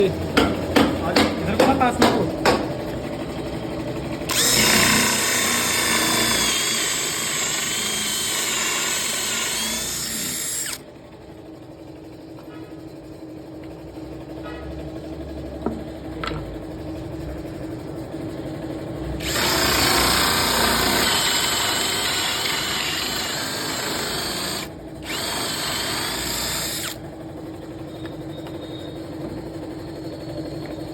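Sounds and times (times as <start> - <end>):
cordless drill boring holes: 4.3 - 10.8, 19.2 - 27.0.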